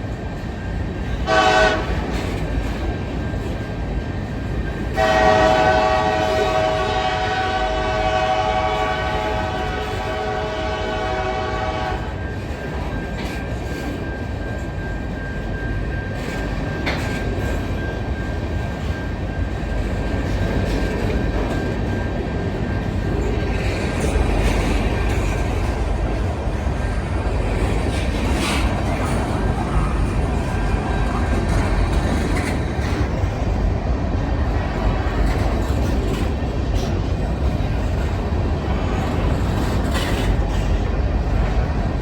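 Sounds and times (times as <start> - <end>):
freight train rumbling past: 0.0 - 42.0
locomotive air horn: 1.2 - 2.1, 5.0 - 12.2.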